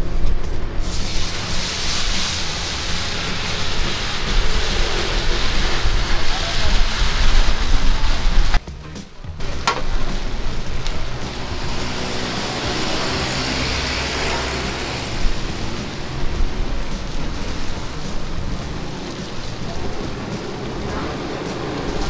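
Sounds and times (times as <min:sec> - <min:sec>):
omelet sizzling in oil: 0:00.8 - 0:08.6, 0:09.4 - 0:22.0.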